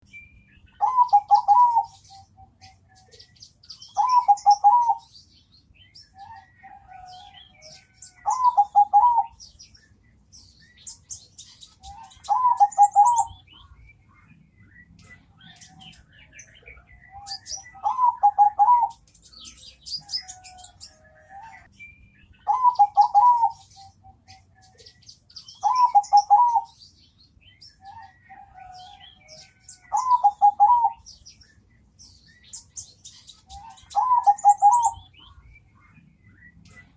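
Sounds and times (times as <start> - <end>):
faint high bird chirping: 0.0 - 36.9
dove cooing: 0.8 - 3.3, 3.9 - 5.1, 6.2 - 9.4, 11.9 - 13.5, 16.6 - 19.1, 22.4 - 24.9, 25.6 - 26.8, 27.8 - 31.1, 33.5 - 35.0.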